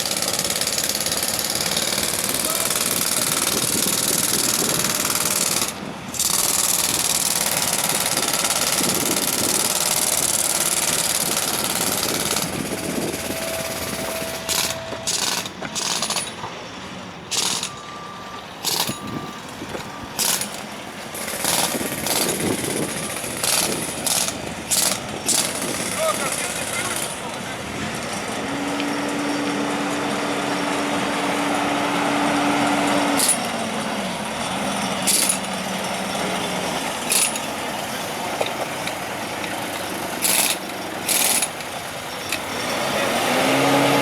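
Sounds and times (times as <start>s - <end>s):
jackhammer breaking concrete: 0.0s - 16.4s, 17.3s - 17.8s, 18.6s - 19.2s, 20.2s - 20.6s, 21.2s - 27.3s, 33.2s - 33.5s, 35.0s - 35.5s, 37.0s - 37.6s, 39.6s - 42.6s.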